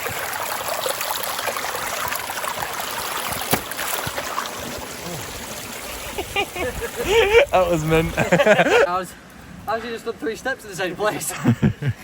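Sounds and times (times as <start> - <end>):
stream trickling: 0.0 - 11.2.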